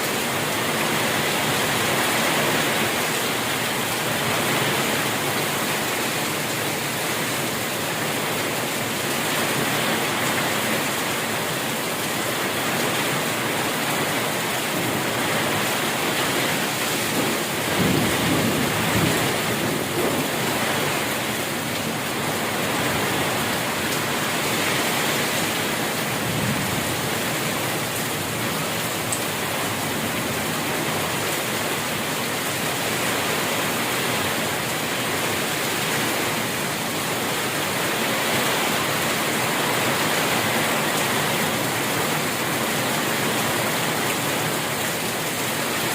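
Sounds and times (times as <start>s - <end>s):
heavy rain falling: 0.0s - 45.9s
low rumble of thunder: 17.1s - 21.2s.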